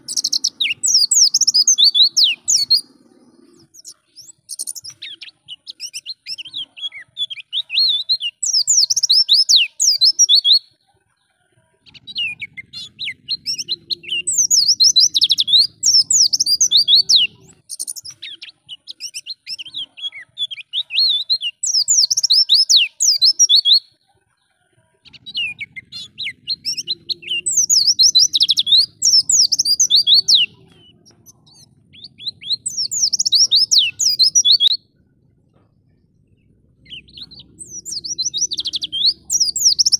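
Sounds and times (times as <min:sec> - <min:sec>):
bird twittering and chirping: 0:00.0 - 0:10.8, 0:11.9 - 0:24.0, 0:25.0 - 0:39.9.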